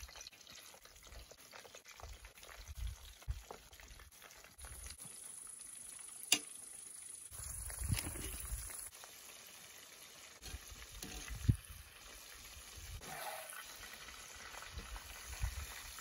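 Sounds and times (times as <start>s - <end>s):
fish sizzling in hot oil: 0.0s - 16.0s
wind rumbling on microphone: 7.4s - 8.7s, 11.2s - 11.8s, 14.7s - 16.0s.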